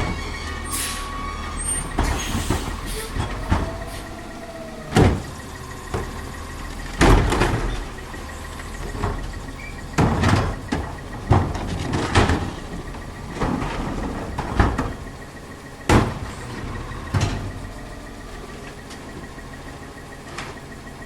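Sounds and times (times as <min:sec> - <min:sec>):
garbage truck engine running: 0:00.0 - 0:21.0
sharp bangs and thuds: 0:01.8 - 0:15.2, 0:15.8 - 0:17.7.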